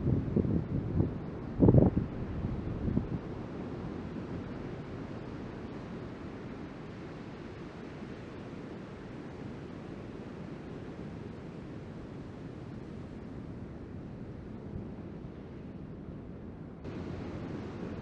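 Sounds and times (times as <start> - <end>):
wind buffeting microphone: 0.0 - 3.3.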